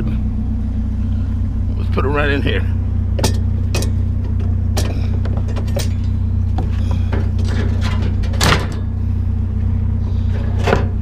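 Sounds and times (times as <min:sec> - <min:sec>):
truck engine idling: 0:00.0 - 0:11.0
scrap metal clanking into truck bed: 0:03.2 - 0:09.0, 0:10.2 - 0:11.0.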